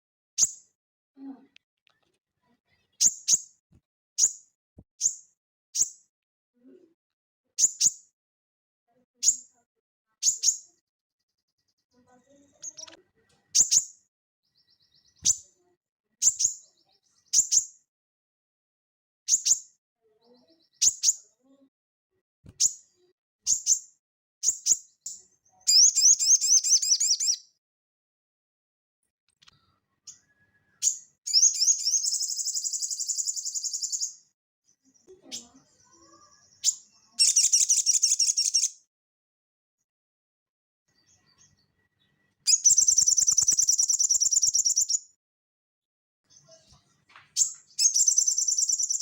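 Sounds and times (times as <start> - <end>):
bird chipping: 25.7 - 27.4, 30.1 - 34.2, 36.2 - 38.8, 42.5 - 45.0, 47.4 - 49.0
bird trilling: 25.7 - 27.4, 36.6 - 38.8, 42.5 - 45.0, 47.4 - 49.0.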